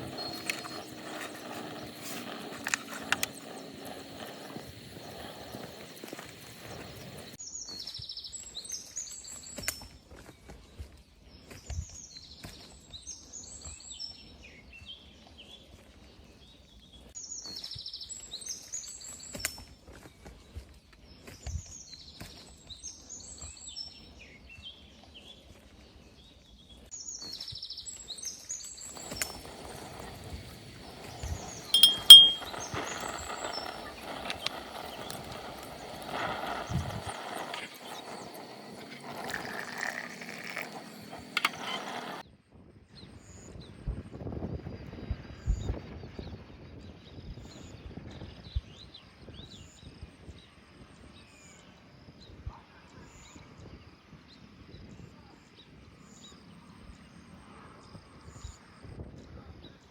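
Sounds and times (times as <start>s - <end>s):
bird chirping: 29.0s - 42.2s.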